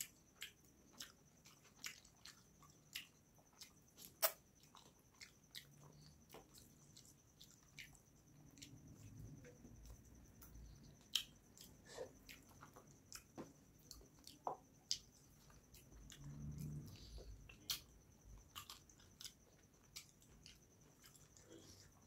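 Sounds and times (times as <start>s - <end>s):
chewing with wet mouth clicks: 0.0s - 22.0s
faint high whine: 0.0s - 22.0s.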